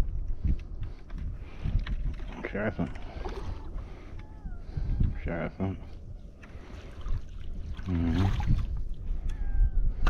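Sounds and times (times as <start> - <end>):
wind rumble on microphone: 0.0 - 10.0
sea water lapping at shore: 6.4 - 9.1.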